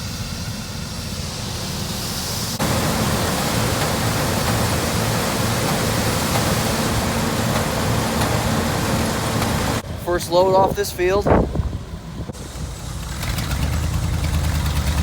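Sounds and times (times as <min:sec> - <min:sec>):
low engine hum: 0:00.0 - 0:15.0
harvest machinery rushing: 0:02.6 - 0:15.0.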